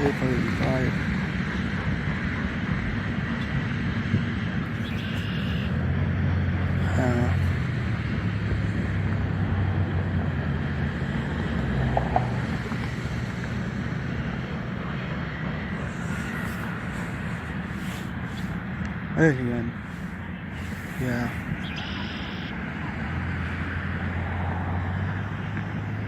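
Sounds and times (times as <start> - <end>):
freight train cars rumbling past: 0.0 - 21.7
wind buffeting microphone: 0.0 - 21.8
high squeal: 4.8 - 5.8, 20.6 - 22.6.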